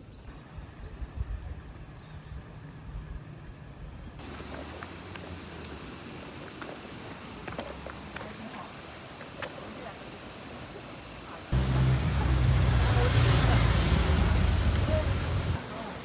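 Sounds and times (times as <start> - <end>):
high-pitched insect chorus: 0.0 - 12.3.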